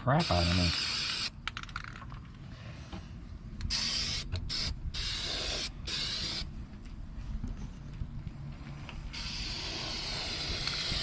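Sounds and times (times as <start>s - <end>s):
aerosol spray can hissing: 9.2s - 11.0s.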